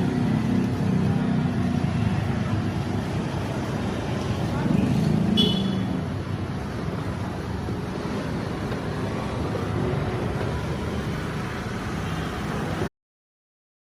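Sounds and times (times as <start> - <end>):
vehicle engines rumbling: 0.0 - 12.9.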